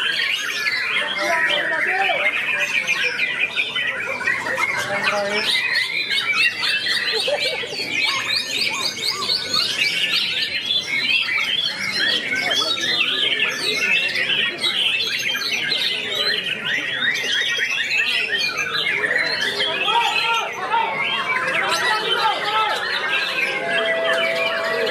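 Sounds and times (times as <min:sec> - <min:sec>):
bird singing whistles and trills: 0:00.0 - 0:19.8.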